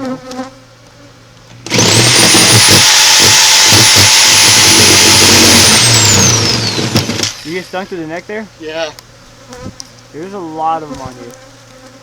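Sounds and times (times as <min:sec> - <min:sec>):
power saw whining: 0:01.4 - 0:08.3.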